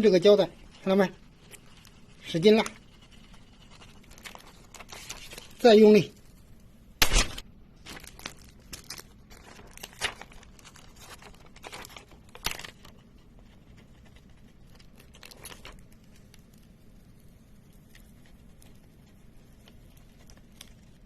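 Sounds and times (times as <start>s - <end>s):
adhesive tape crinkling and snapping: 3.7s - 5.6s, 6.2s - 13.0s, 14.7s - 16.8s, 19.6s - 21.0s.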